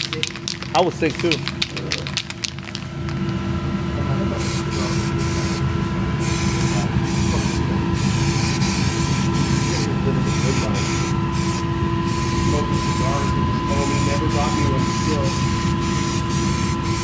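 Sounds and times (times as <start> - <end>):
aerosol spray can hissing: 0.0 - 2.8
steady low hum: 0.0 - 17.0.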